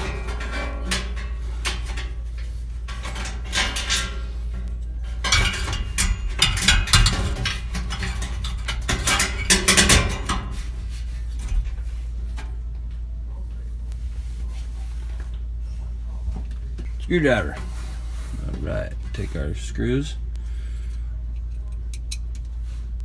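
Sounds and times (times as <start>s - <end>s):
metal clinking and clattering: 0.0s - 12.9s
steady low hum: 0.0s - 23.0s.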